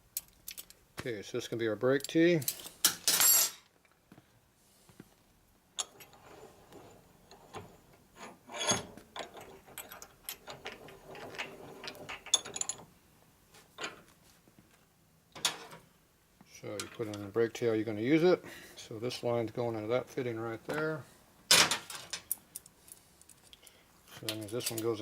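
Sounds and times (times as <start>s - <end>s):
metal clicks and scrapes of tools: 0.2s - 0.8s, 2.0s - 3.6s, 5.8s - 12.8s, 21.9s - 25.0s.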